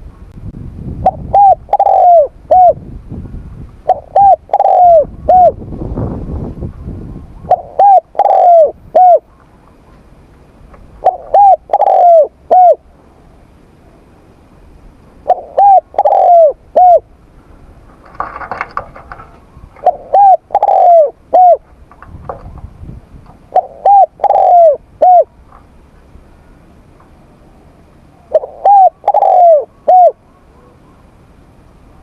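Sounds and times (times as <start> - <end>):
dove cooing: 1.0 - 2.8, 3.8 - 5.6, 7.4 - 10.0, 11.0 - 12.9, 15.2 - 17.2, 18.2 - 21.7, 23.4 - 25.4, 27.5 - 31.0.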